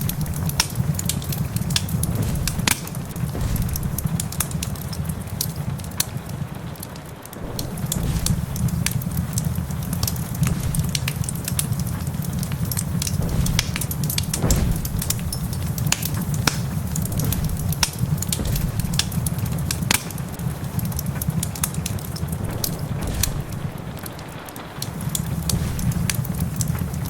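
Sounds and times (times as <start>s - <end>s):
rain pattering: 0.0s - 27.0s
wood fire crackling and popping: 0.0s - 27.0s.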